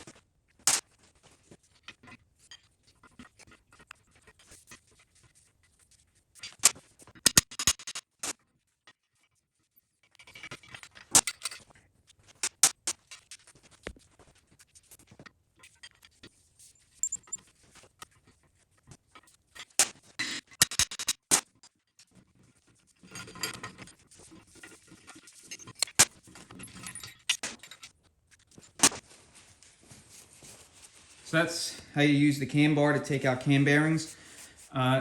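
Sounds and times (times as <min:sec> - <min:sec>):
metal clinking and rattling: 0:10.3 - 0:13.4, 0:16.9 - 0:17.5, 0:22.9 - 0:29.0.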